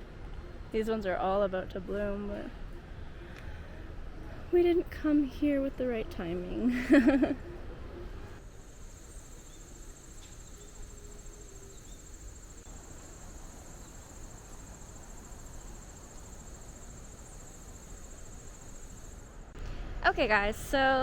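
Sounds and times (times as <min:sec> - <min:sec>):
cricket trilling: 0:08.4 - 0:19.6.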